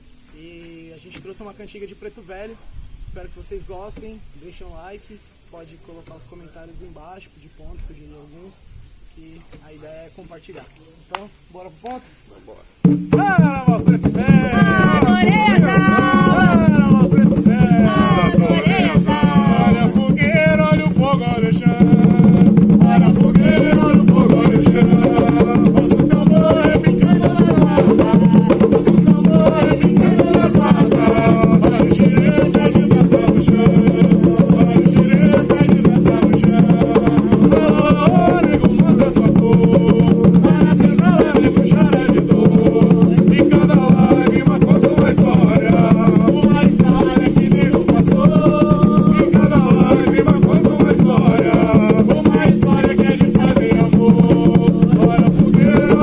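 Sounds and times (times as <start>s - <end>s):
hand drums steady rhythm: 12.8s - 56.0s
voices singing a chant: 13.1s - 56.0s.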